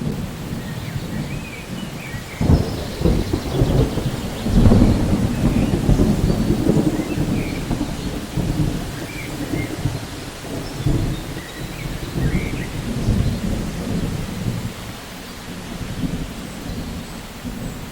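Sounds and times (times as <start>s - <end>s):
steady rain: 0.0s - 17.9s
thunder rumbling: 0.0s - 17.9s.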